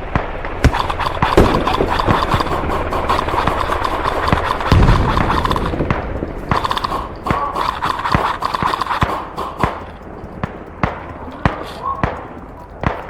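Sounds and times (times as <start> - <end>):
airsoft guns firing: 0.1 - 13.0
pellets cracking against surfaces: 0.6 - 13.0.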